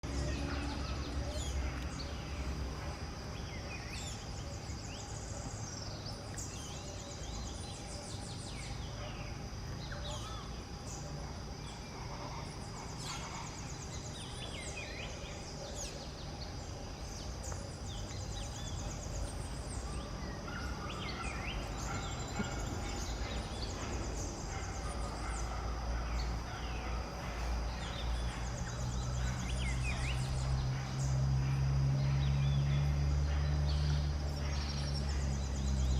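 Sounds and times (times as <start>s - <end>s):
birds chirping and calling: 0.0s - 31.2s.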